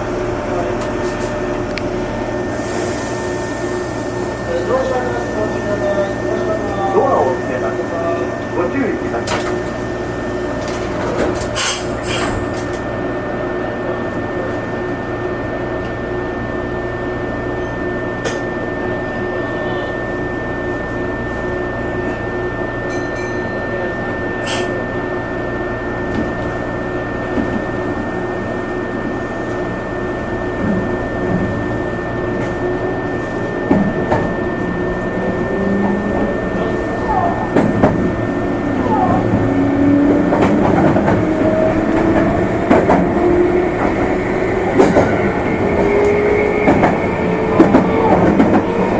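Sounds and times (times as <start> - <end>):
train hum and rumble: 0.0 - 48.9
high whine: 17.3 - 48.9.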